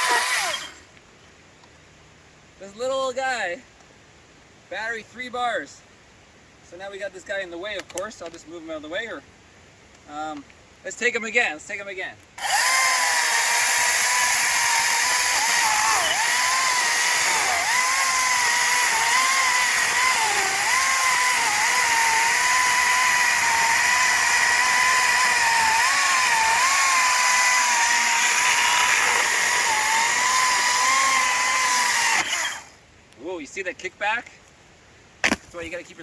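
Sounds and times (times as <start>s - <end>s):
electric chainsaw cutting wood: 0.0s - 0.8s, 12.4s - 32.8s.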